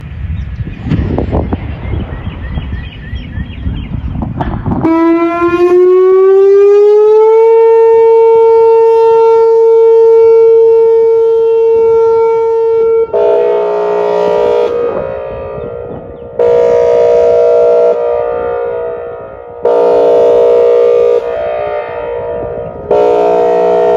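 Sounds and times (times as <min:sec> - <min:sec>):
tornado siren tone: 0:00.0 - 0:23.9
wind on microphone: 0:00.0 - 0:23.9
harsh chord-like horn tone: 0:07.2 - 0:23.9.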